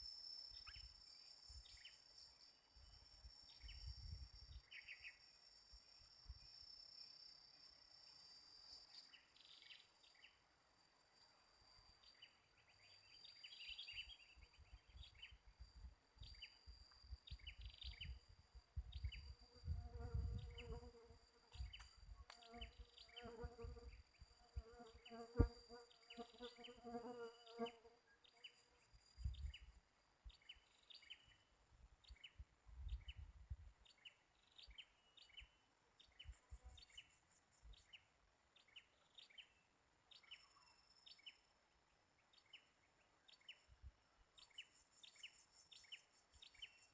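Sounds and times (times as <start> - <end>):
bird chirps: 0.0 - 7.2, 12.0 - 19.3, 42.2 - 43.7, 44.4 - 46.9
insect buzzing: 17.2 - 29.7.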